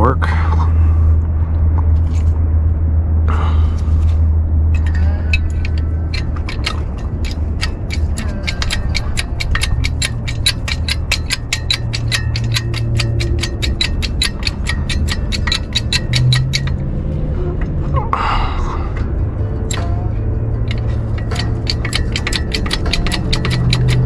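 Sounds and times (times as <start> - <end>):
steady low hum: 0.0 - 24.0
metal ratchet clicking: 4.7 - 16.8, 19.6 - 24.0.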